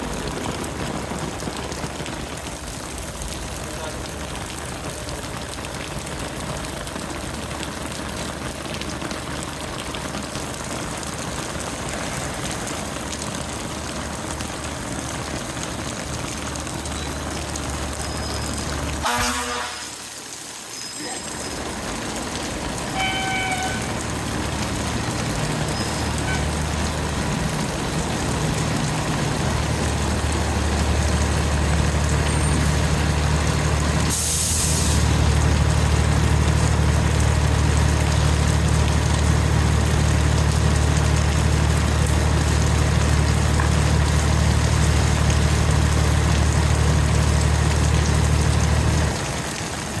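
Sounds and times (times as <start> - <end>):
diesel engine drone: 21.6 - 49.5
air brake hiss: 34.1 - 35.0.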